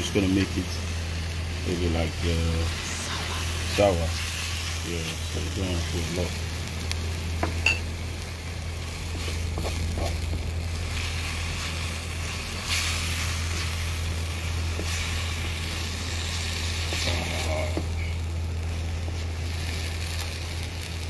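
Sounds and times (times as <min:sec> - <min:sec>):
steady low hum: 0:00.0 - 0:21.0
vegetables sizzling in a wok: 0:00.0 - 0:21.0
wooden spatula scraping a wok: 0:09.0 - 0:18.1.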